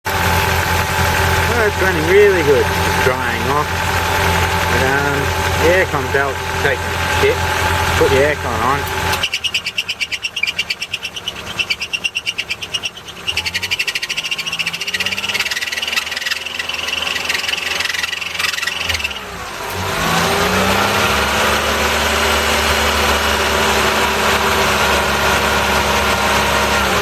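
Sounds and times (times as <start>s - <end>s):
engine running: 0.0s - 27.0s
belt chirping and squealing: 1.5s - 19.4s.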